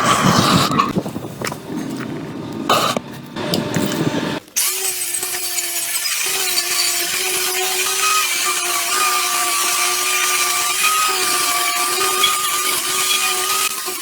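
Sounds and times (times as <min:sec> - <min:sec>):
small power tool running: 0:03.4 - 0:14.0.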